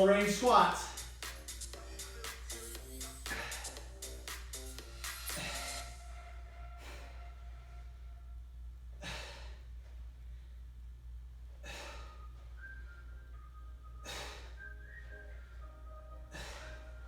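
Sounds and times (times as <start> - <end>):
faint background music: 0.0 - 8.5, 14.1 - 17.0.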